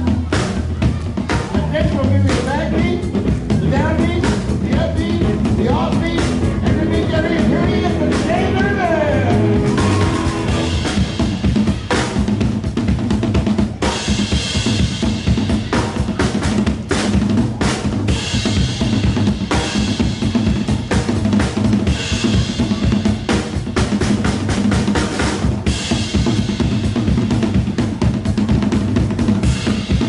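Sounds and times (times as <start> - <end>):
drum kit played hard: 0.0 - 30.0
steady low note: 2.6 - 11.8.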